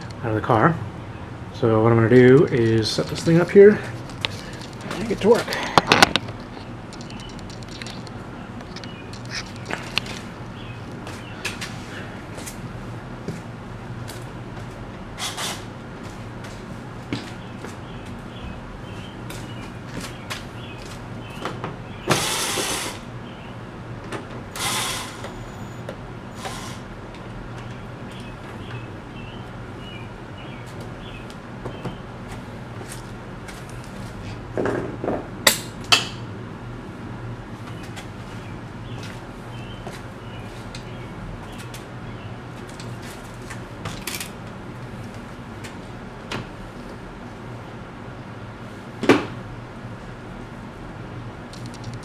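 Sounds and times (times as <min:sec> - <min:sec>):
steady low hum: 0:00.0 - 0:52.0
small clicks: 0:51.5 - 0:52.0.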